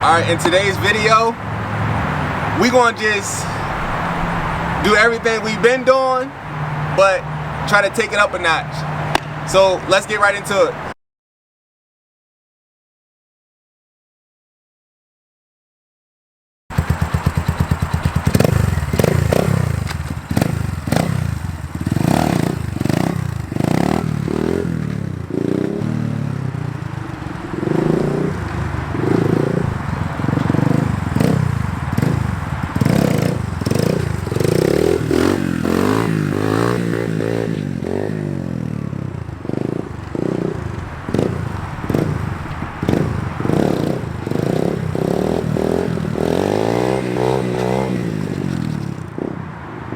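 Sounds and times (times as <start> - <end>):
dirt bike engine revving: 0.0 - 10.9, 16.7 - 49.0.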